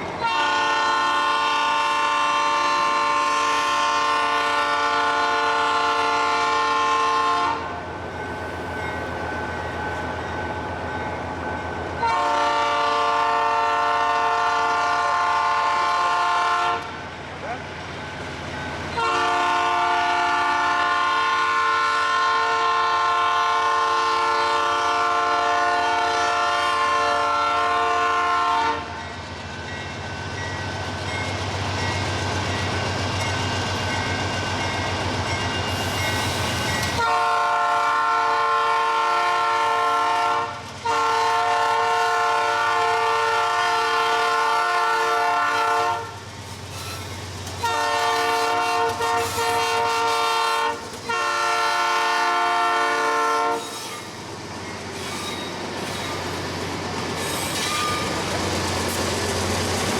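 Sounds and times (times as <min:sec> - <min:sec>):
train rumble and rolling: 0:00.0 - 0:59.9
locomotive air horn blasts: 0:00.2 - 0:07.7, 0:12.0 - 0:16.9, 0:19.0 - 0:28.9, 0:37.0 - 0:46.2, 0:47.6 - 0:53.8.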